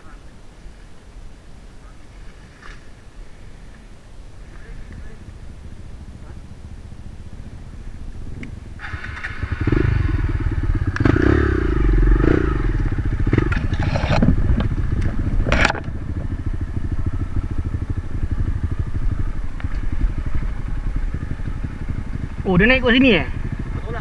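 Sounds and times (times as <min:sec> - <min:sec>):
dirt bike engine revving: 0:04.9 - 0:24.0
knocks and clatter: 0:13.3 - 0:16.3.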